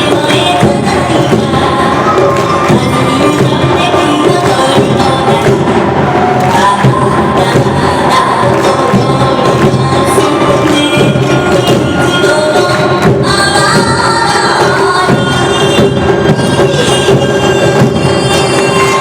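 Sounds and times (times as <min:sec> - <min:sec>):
drums beating: 0:00.0 - 0:19.0
high flute melody: 0:15.0 - 0:19.0.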